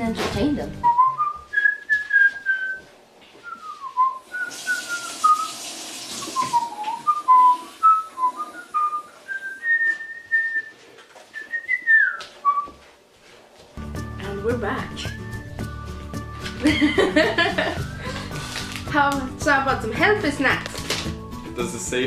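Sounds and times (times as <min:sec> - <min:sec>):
person whistling a tune: 0:00.8 - 0:05.6, 0:06.2 - 0:10.8, 0:11.4 - 0:12.8.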